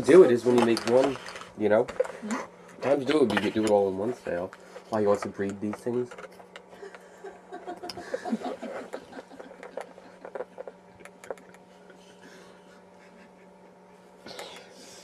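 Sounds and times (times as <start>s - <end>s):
steady low hum: 0.0s - 15.0s
soft laughter: 6.7s - 14.2s.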